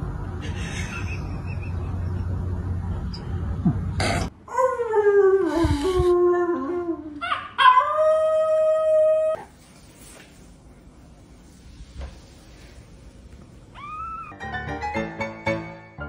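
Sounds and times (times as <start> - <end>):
puppy howling: 4.6 - 9.4, 13.8 - 14.4.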